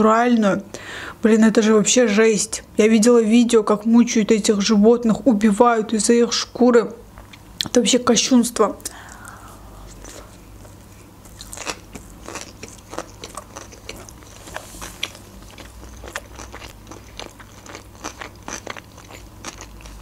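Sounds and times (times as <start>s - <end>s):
close chewing of food: 9.1s - 20.0s.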